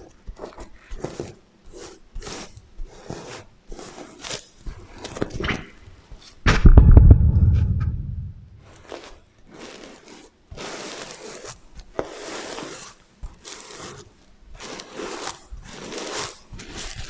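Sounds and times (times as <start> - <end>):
loud low thump: 6.5 - 8.6.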